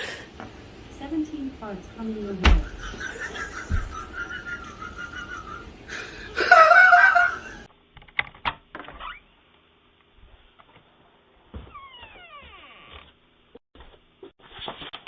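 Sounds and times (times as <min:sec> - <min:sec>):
person laughing loudly: 0:02.6 - 0:07.7.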